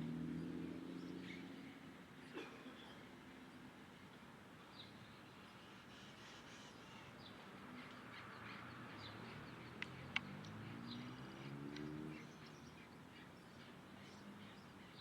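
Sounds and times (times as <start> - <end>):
small birds chirping: 6.2 - 15.0.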